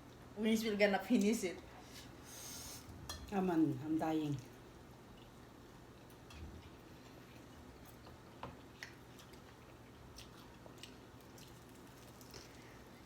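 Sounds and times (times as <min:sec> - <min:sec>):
chewing chicken wings: 0:06.0 - 0:13.0.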